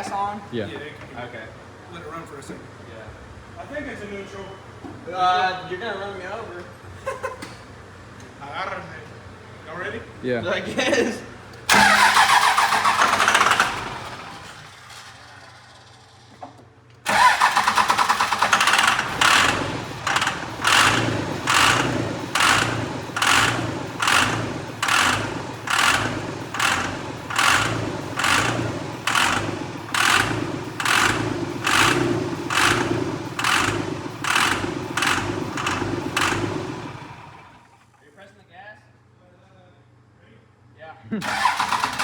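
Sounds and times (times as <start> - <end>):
diesel engine starting and running: 11.7 - 38.0, 41.2 - 42.0.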